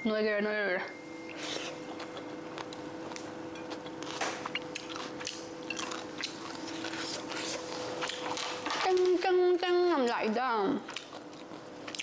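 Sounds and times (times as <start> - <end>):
two-tone hum: 0.0 - 8.8
person chewing food: 1.3 - 8.6, 10.9 - 12.0.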